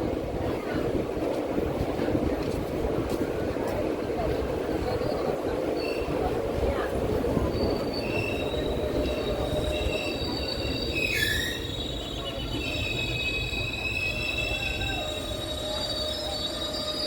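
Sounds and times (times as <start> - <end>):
train rumbling on rails: 0.0 - 17.0
train wheel squeal: 4.8 - 6.3, 7.3 - 17.0.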